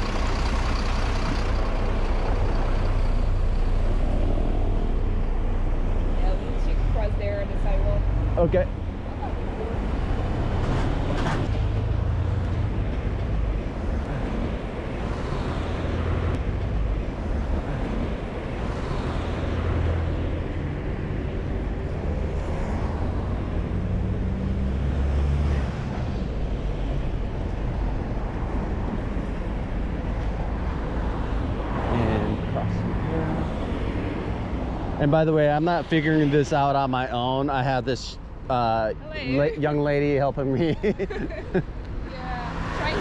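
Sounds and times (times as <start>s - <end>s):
vehicles passing: 0.0s - 43.0s.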